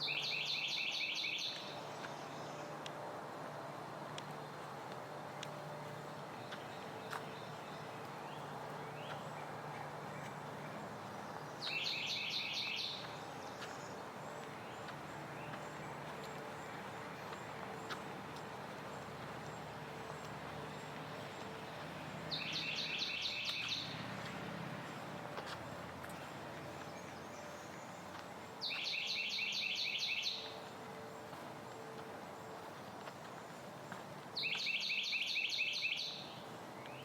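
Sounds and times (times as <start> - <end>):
songbird singing high notes: 0.0 - 1.7, 11.6 - 13.1, 22.3 - 24.0, 28.6 - 30.6, 34.4 - 37.0.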